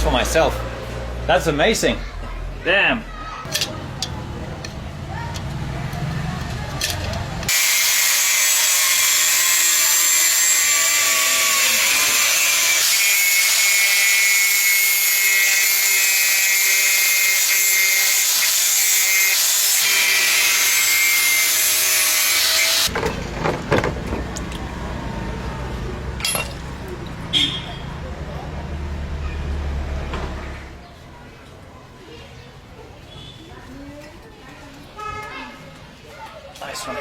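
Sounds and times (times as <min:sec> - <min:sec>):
power grinder grinding with whine: 0:07.5 - 0:22.9.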